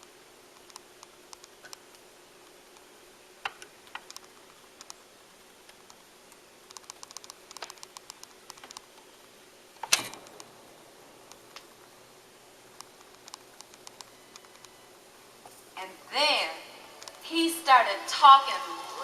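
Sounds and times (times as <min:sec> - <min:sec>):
turntable hum: 0:00.0 - 0:19.0
vinyl clicks and pops: 0:00.5 - 0:05.0, 0:05.6 - 0:09.1, 0:09.8 - 0:10.6, 0:11.2 - 0:11.8, 0:12.7 - 0:14.8, 0:17.0 - 0:17.2.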